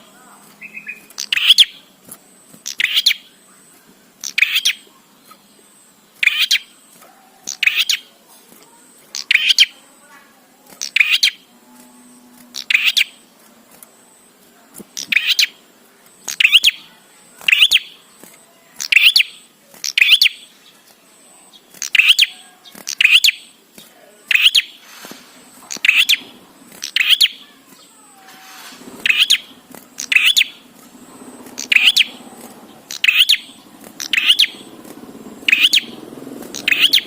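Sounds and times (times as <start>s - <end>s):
bird calling: 0.0s - 2.0s, 2.6s - 8.1s, 10.8s - 11.5s, 12.5s - 13.2s, 14.9s - 18.1s, 18.8s - 20.6s, 21.5s - 23.6s, 24.2s - 37.0s.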